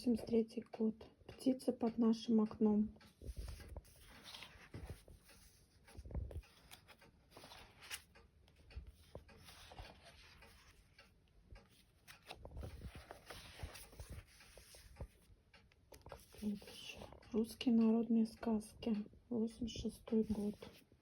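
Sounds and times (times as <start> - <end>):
book pages turning: 3.0 - 17.2, 20.2 - 20.9.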